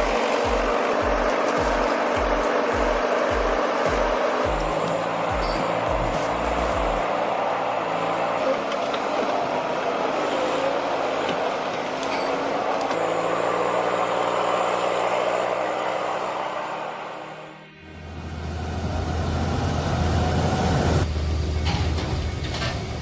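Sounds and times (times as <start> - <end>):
heavy diesel machine running: 0.0 - 23.0.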